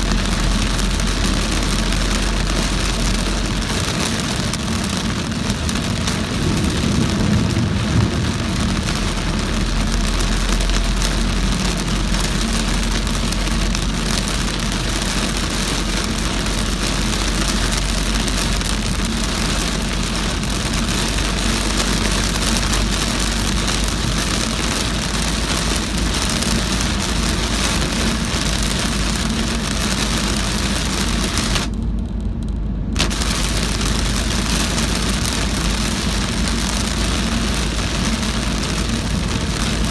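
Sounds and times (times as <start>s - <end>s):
car engine and road noise: 0.0s - 39.9s
heavy rain on a car: 0.0s - 39.9s.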